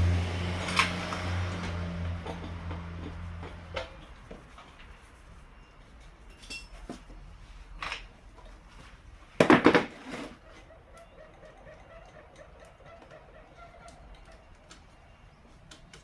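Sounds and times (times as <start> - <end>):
metal tools clinking: 6.2 - 7.1.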